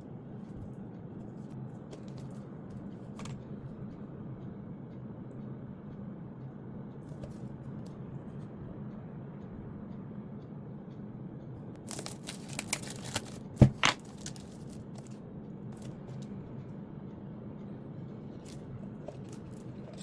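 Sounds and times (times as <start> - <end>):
low steady hum: 0.0 - 20.0
packaging crinkling and tearing: 11.9 - 15.1.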